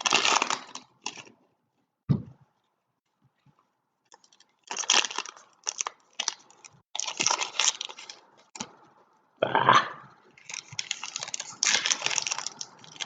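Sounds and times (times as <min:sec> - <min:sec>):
foil wrappers crinkling and tearing: 0:00.0 - 0:01.5, 0:04.1 - 0:08.8, 0:10.4 - 0:13.0.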